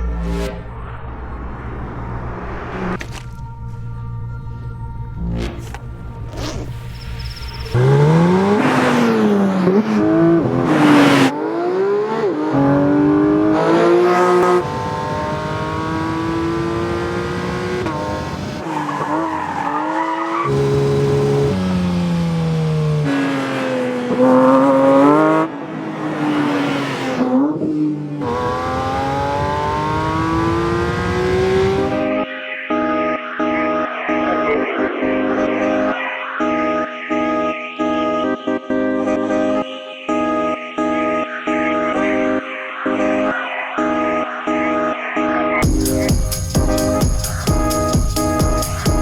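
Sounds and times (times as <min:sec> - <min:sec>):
car engine revving hard: 0:07.7 - 0:18.7, 0:20.2 - 0:32.1.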